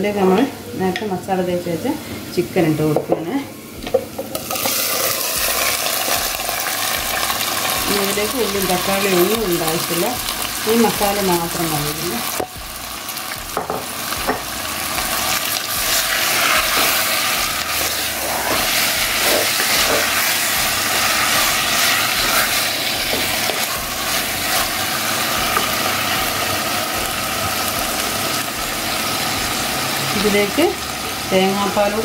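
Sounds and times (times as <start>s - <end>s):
chicken sizzling in oil: 4.3s - 32.0s
wooden spatula scraping: 15.8s - 25.8s.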